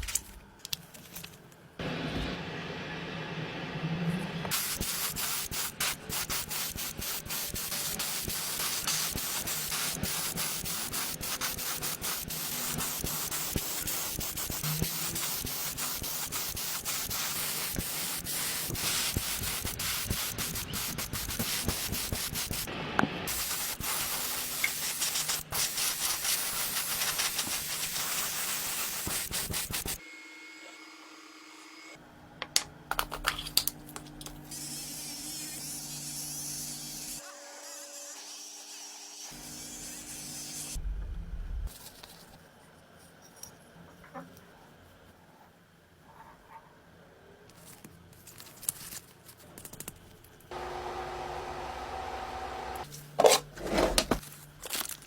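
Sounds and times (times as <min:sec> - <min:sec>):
sanding strokes on a surface: 0:34.6 - 0:40.8
low hum: 0:40.8 - 0:41.7.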